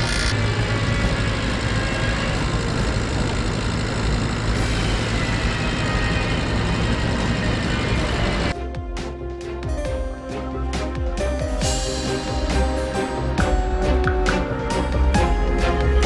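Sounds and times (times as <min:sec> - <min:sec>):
machine humming: 0:00.0 - 0:08.6.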